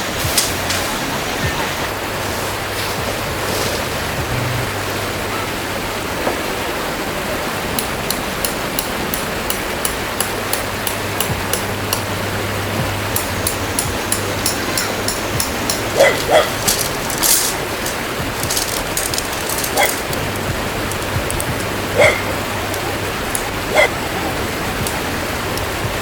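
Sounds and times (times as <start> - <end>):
stream water flowing: 0.0 - 26.0
sharp high ticks: 13.1 - 23.9.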